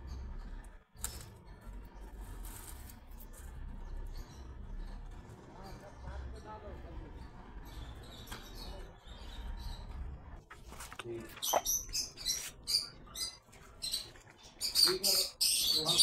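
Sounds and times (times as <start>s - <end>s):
birds chirping shrill calls: 11.3s - 16.0s.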